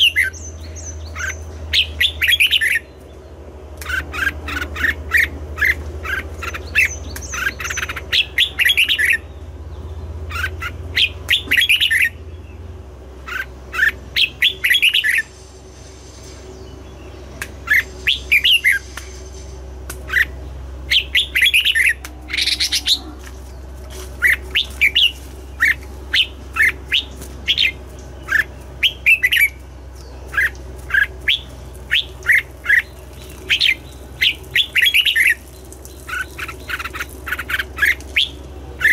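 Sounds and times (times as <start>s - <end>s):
bird singing whistled notes: 10.4s - 12.2s, 13.3s - 15.3s, 16.6s - 19.1s, 20.1s - 23.0s, 24.2s - 38.9s.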